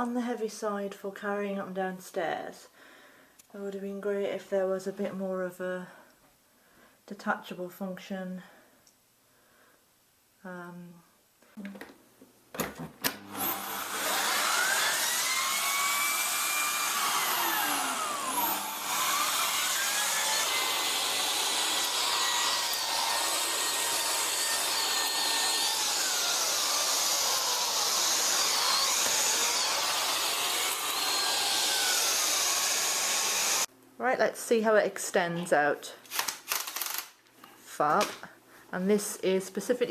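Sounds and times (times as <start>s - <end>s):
vacuum cleaner clicks: 12.6s - 13.4s
vacuum cleaner running: 13.1s - 33.7s.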